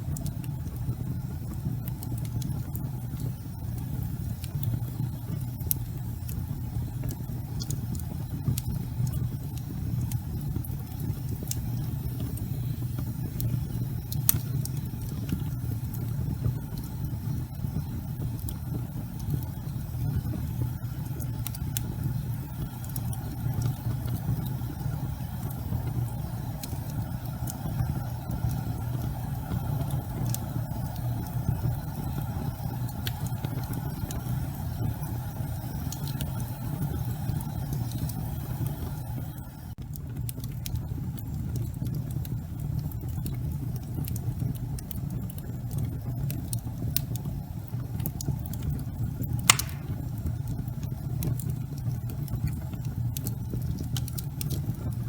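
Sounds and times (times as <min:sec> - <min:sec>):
fire rumbling with crackles: 0:00.0 - 0:55.0
sharp pop of fire: 0:49.5 - 0:50.2.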